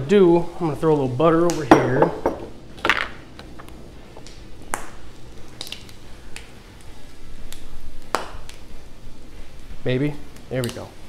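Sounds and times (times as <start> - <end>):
fat crackling and popping: 0.1 - 11.0
ham frying on a griddle: 4.0 - 11.0.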